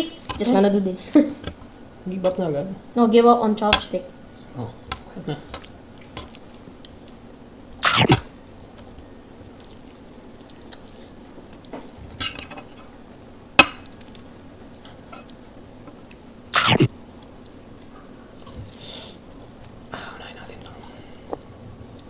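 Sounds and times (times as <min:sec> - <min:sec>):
steady low hum: 0:00.0 - 0:22.0
chewing: 0:04.3 - 0:19.9, 0:20.5 - 0:22.0
cutlery clinking on a dish: 0:12.2 - 0:12.8.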